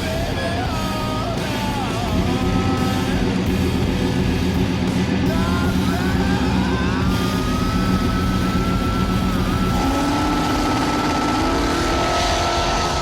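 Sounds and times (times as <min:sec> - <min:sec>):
car engines revving: 0:00.0 - 0:13.0
engine whine: 0:00.0 - 0:13.0.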